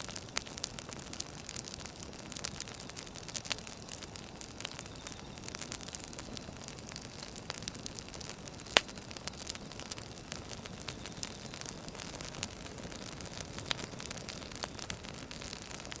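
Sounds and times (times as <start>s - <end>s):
firewood crackling: 0.0s - 16.0s
sharp pops of burning wood: 0.0s - 16.0s.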